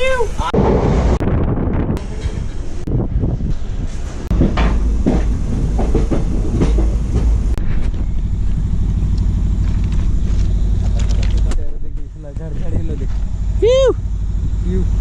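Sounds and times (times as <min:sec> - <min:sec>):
train rumbling on track: 0:00.0 - 0:15.0
sharp knocks: 0:04.3 - 0:07.6.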